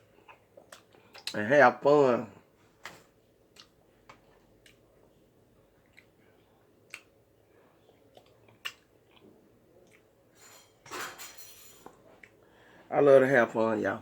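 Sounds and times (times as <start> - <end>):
chewing: 0.2 - 1.4, 3.5 - 5.1, 5.8 - 7.2, 7.8 - 10.1.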